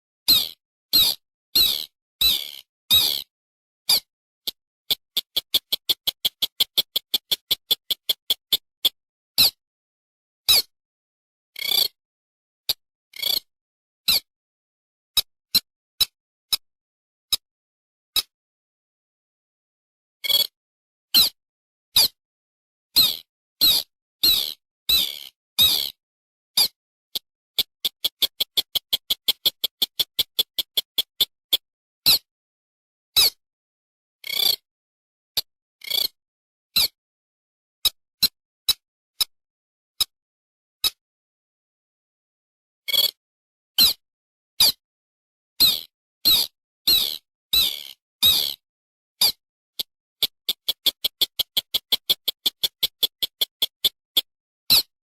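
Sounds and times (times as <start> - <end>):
rapid short clipped bird notes: 4.9 - 9.6, 27.6 - 32.2, 50.2 - 54.9.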